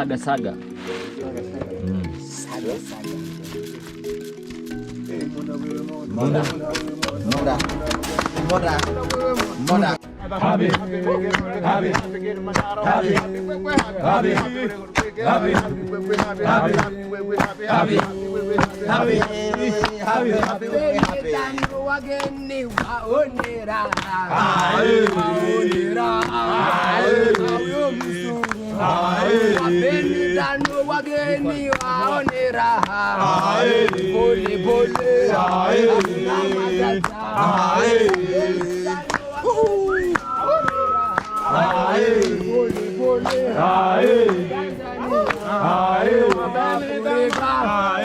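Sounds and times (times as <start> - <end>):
men singing a chant: 5.0 - 48.0.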